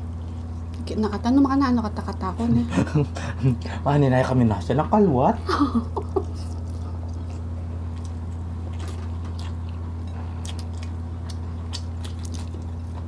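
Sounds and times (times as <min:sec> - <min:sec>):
chewing with wet mouth smacks: 0:06.0 - 0:13.0.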